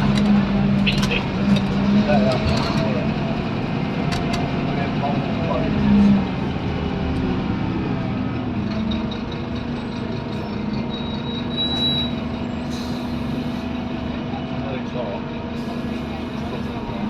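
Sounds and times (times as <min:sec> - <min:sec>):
diesel bus engine droning: 0:00.0 - 0:17.0
brief high squeal: 0:10.9 - 0:13.0.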